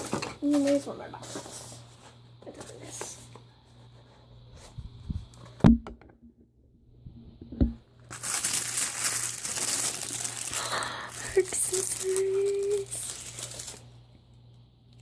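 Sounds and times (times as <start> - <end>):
packaging crinkling and tearing: 8.1 - 13.9.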